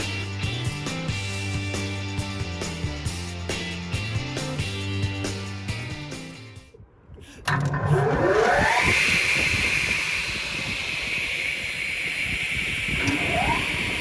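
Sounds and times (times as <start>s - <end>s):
circular saw whining: 7.5s - 14.0s.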